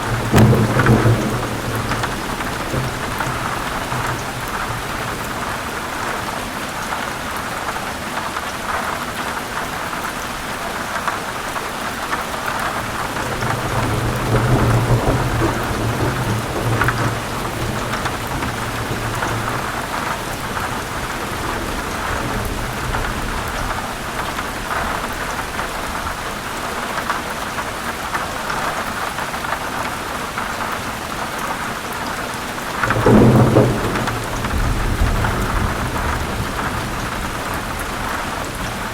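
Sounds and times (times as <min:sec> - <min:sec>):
sharp thunder clap: 0:00.0 - 0:05.8, 0:12.7 - 0:25.2, 0:32.8 - 0:38.9
low rolling thunder: 0:00.0 - 0:06.4, 0:12.4 - 0:26.2, 0:32.7 - 0:38.9
heavy rain falling: 0:00.0 - 0:38.9.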